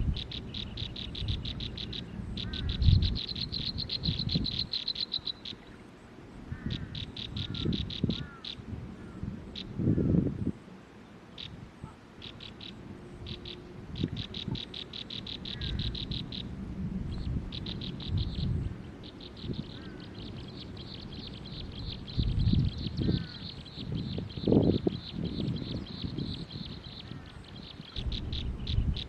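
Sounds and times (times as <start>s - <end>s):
bird chirping: 0.0s - 8.6s, 11.3s - 29.0s
low rumbling: 15.4s - 26.6s.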